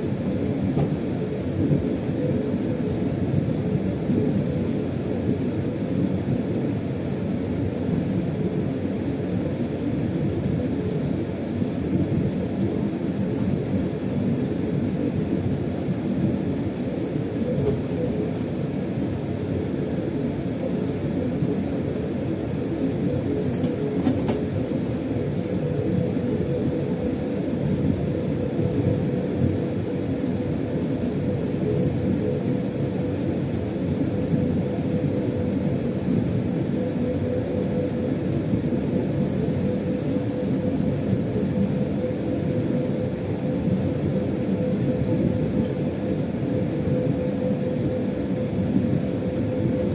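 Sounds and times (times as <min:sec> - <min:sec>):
train rumble: 0:00.6 - 0:01.8, 0:23.5 - 0:24.5.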